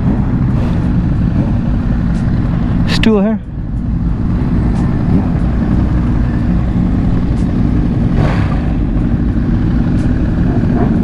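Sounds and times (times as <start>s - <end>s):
motorcycle engine rumbling: 0.0s - 11.0s
brief rush of noise: 0.5s - 1.5s.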